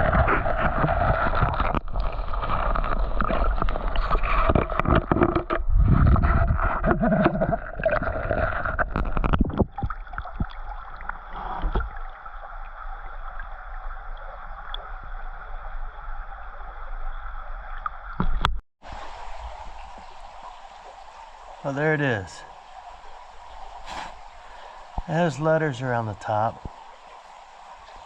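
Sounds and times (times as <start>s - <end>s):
splashes and knocks: 0.0s - 12.1s, 18.2s - 18.6s
creek water sloshing and gurgling: 0.0s - 28.0s.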